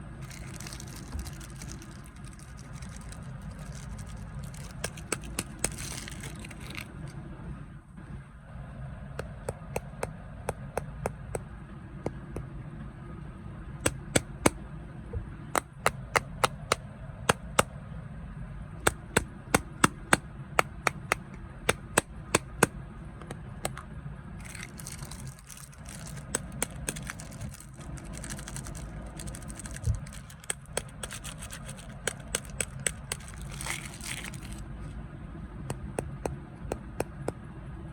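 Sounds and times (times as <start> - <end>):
crackly rustling: 0.0 - 7.2, 24.4 - 35.0
crunchy snacks snapping: 0.2 - 6.9, 24.4 - 34.7.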